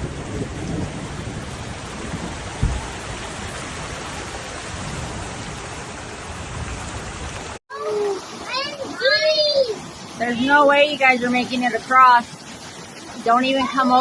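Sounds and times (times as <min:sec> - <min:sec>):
heavy rain and floodwater rushing: 0:00.0 - 0:14.0
low thump: 0:02.5 - 0:02.9.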